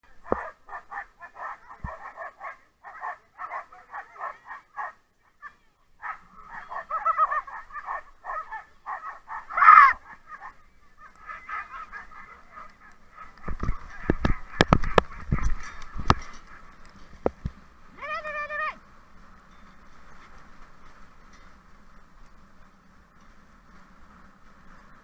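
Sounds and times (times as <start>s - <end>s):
dogs yelping and barking: 0.2s - 16.9s.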